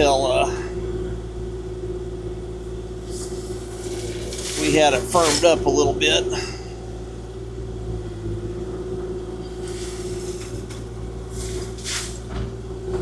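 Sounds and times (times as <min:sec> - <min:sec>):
excavator diesel engine running: 0:00.0 - 0:13.0
hydraulic whine: 0:00.0 - 0:13.0.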